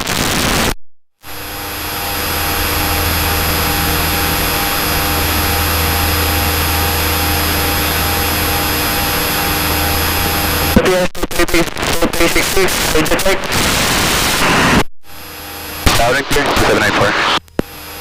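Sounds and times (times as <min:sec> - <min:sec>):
propeller plane engine droning: 0:01.3 - 0:10.8.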